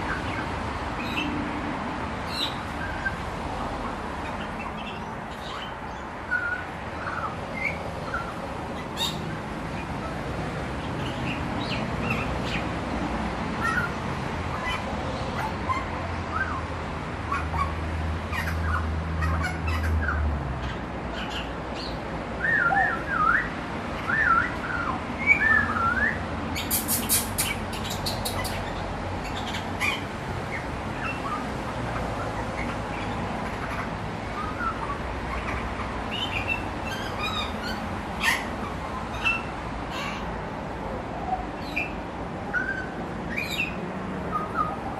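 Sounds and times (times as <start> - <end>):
bird chirps: 20.6 - 30.0.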